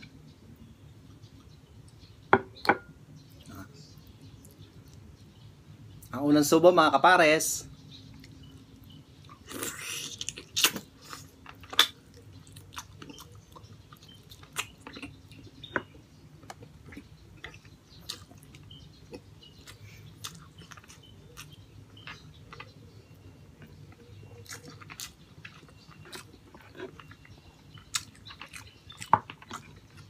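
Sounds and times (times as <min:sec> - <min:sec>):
wet chewing and smacking: 0:08.1 - 0:30.0
loud bite: 0:09.4 - 0:12.0.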